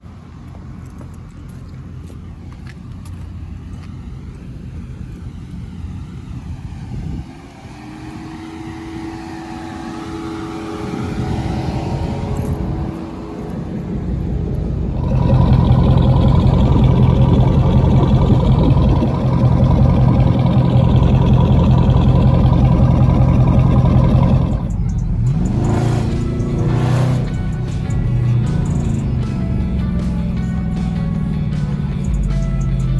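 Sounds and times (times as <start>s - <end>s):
car engine revving: 3.0s - 32.9s.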